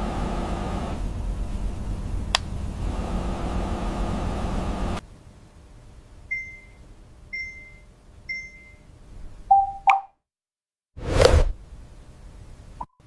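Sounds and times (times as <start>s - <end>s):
steady mechanical noise: 0.0s - 5.0s
lower beep: 9.5s - 10.0s
high electronic beeps: 9.5s - 10.1s.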